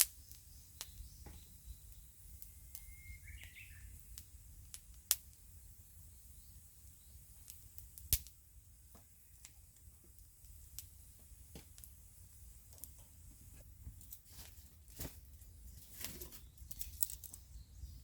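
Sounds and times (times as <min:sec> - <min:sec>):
wood fire crackling: 0:00.0 - 0:18.0
bird chirp: 0:00.1 - 0:04.3, 0:05.8 - 0:07.4, 0:15.4 - 0:18.0.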